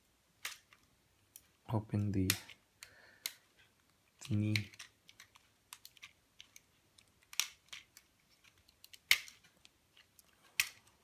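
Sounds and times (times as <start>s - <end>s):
plastic toy joints clicking: 4.2s - 11.0s.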